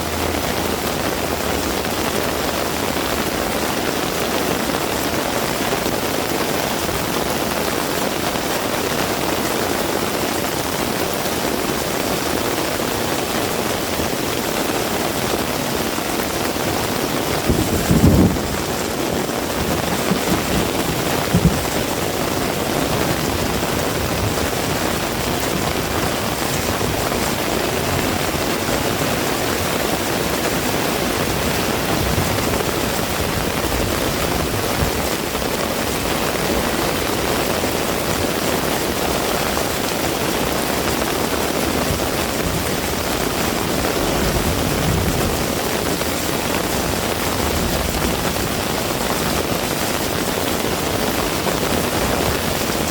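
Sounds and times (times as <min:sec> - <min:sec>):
heavy rain falling: 0:00.0 - 0:52.9
low thumps: 0:17.4 - 0:25.6.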